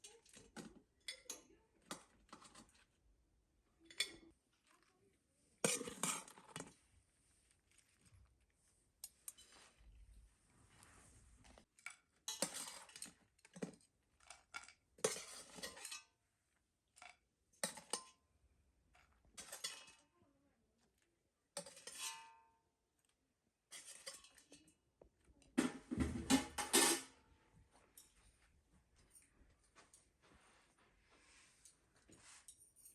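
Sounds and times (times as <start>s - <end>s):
metal dishes and pots clattering: 5.6s - 6.7s, 12.3s - 13.8s, 14.5s - 16.1s, 17.6s - 18.1s, 19.4s - 20.0s, 21.6s - 22.4s, 23.7s - 24.6s, 25.6s - 27.1s.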